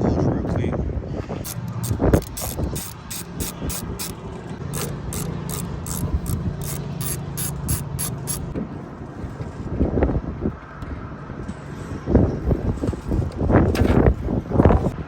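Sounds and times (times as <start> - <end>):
ratchet wrench clicking: 1.4 - 8.6.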